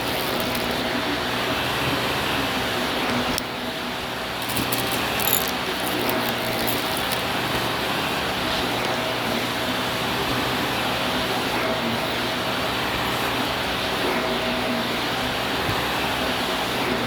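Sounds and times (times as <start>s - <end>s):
light clicks and rattles: 4.4s - 7.7s.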